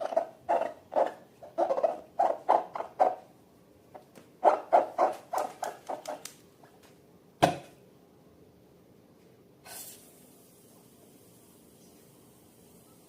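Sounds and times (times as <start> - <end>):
brief faint hiss: 9.6 - 10.3.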